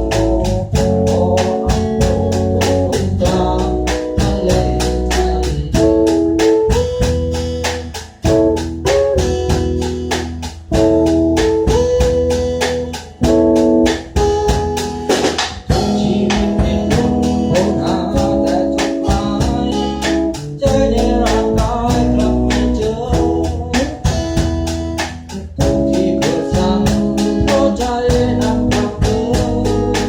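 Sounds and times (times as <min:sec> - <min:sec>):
person singing: 0:00.0 - 0:06.8, 0:15.7 - 0:24.6, 0:25.3 - 0:30.0
bass guitar: 0:00.0 - 0:30.0
drum kit beat: 0:00.0 - 0:30.0
electric guitar chords: 0:00.0 - 0:30.0.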